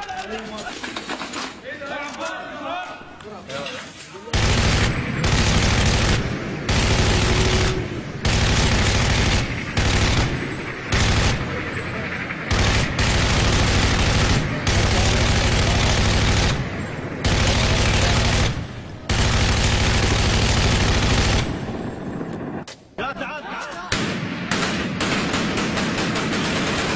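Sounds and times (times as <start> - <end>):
automatic gunfire bursts: 4.3 - 22.1, 23.9 - 26.9.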